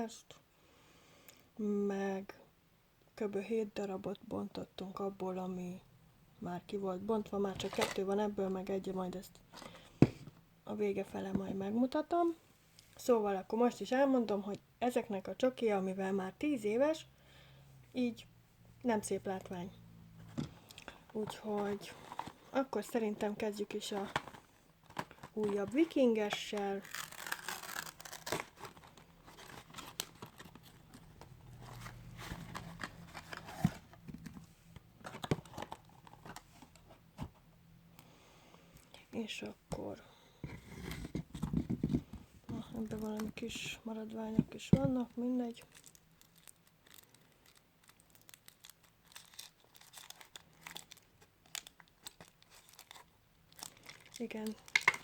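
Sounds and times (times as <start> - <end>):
foil wrapper crinkling: 23.8 - 31.0, 45.6 - 55.0.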